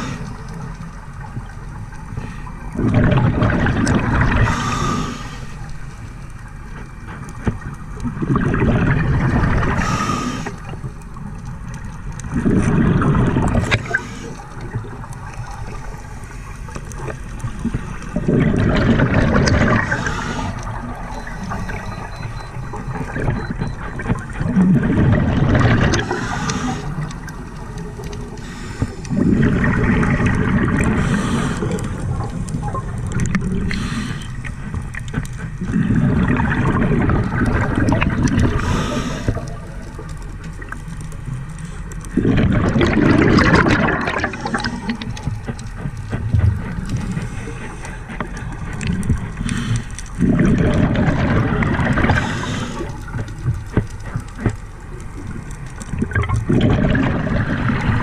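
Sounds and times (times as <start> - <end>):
diver exhaling bubbles: 0.0 - 0.7, 2.2 - 5.4, 8.1 - 10.8, 12.3 - 16.0, 17.5 - 34.6, 35.6 - 40.1, 42.0 - 45.5, 46.1 - 54.5, 55.2 - 58.0.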